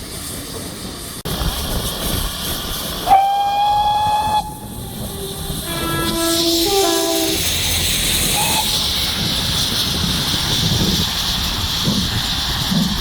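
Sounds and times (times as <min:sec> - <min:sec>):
steam locomotive hissing: 0:00.0 - 0:13.0
high steam whistle: 0:03.0 - 0:09.2
lower whistle-like tones: 0:03.0 - 0:09.2.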